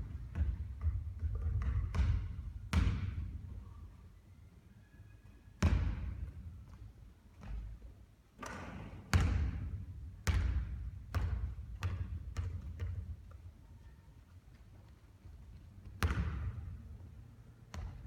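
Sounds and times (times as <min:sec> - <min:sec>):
basketball bouncing on court: 0:00.0 - 0:03.4, 0:05.6 - 0:06.4, 0:08.4 - 0:13.4, 0:15.8 - 0:16.8, 0:17.7 - 0:18.0.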